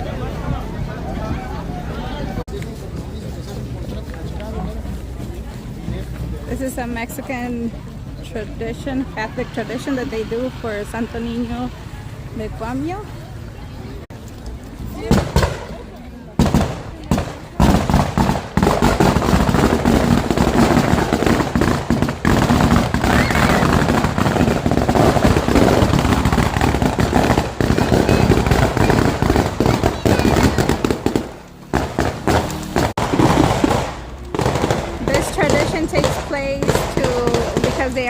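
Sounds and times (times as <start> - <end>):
firecrackers crackling: 2.4 - 38.0.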